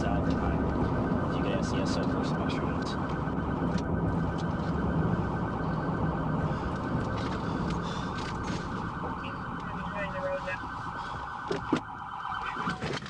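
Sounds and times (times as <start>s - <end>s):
low rumble: 0.0s - 9.8s
electronic siren warbling: 0.0s - 13.0s.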